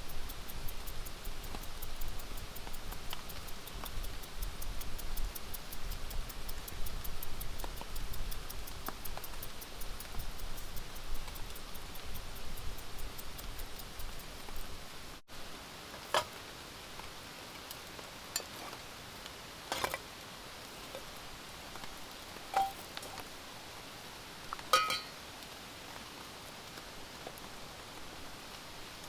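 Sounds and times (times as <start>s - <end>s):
fast ticking: 0.0s - 14.8s
rain hissing: 0.0s - 29.0s
sharp knocks or clinks: 22.5s - 23.2s, 24.8s - 25.2s.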